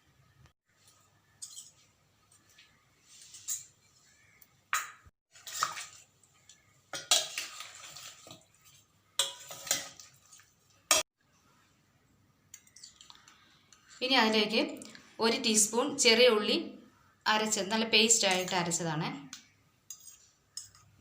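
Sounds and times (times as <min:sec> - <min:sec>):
wet squelching and sloshing: 0:05.3 - 0:10.8.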